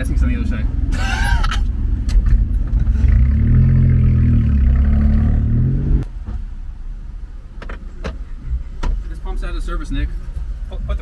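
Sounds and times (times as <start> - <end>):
small truck engine droning: 0.9 - 6.3.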